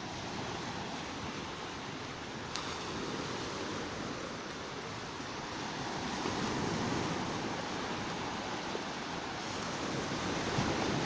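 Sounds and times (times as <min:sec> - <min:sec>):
surf washing onto beach: 0:00.0 - 0:11.0
wind on microphone: 0:02.5 - 0:11.0.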